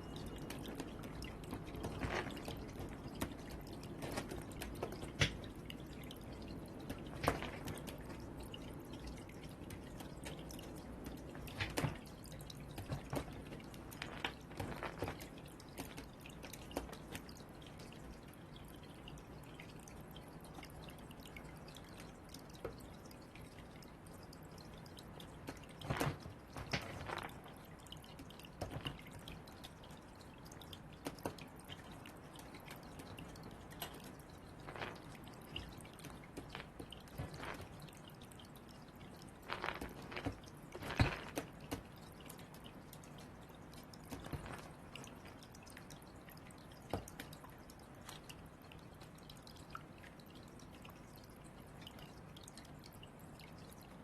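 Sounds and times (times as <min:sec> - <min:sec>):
crows pecking at balls: 0:00.4 - 0:08.4, 0:09.7 - 0:17.9, 0:25.4 - 0:29.3, 0:33.0 - 0:37.8, 0:39.3 - 0:41.9.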